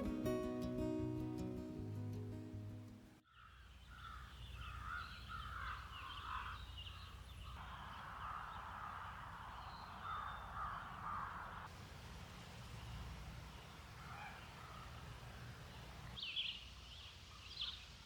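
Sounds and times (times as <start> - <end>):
guitar music: 0.0 - 3.2
birds calling: 0.0 - 11.7, 12.4 - 18.0.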